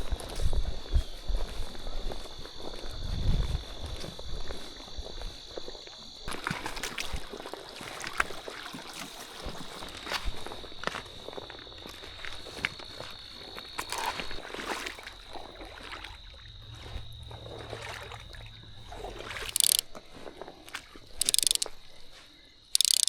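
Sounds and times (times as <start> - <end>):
high insect trill: 0.0 - 8.5, 9.5 - 20.3, 20.9 - 23.0
fly reel drag rasping: 19.4 - 19.9, 21.1 - 21.7, 22.7 - 23.0
rustles and clicks: 19.5 - 19.8, 21.2 - 21.7, 22.8 - 23.0.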